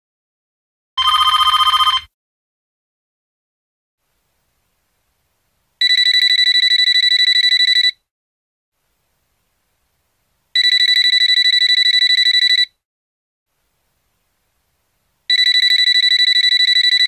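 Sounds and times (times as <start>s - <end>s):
telephone ringing: 1.0s - 2.1s, 5.8s - 8.0s, 10.6s - 12.7s, 15.3s - 17.0s.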